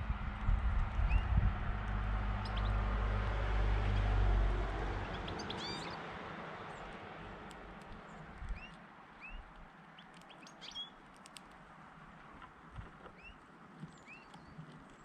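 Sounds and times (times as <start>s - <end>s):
vehicle passing by: 0.0s - 7.5s
finches twittering: 5.1s - 6.0s.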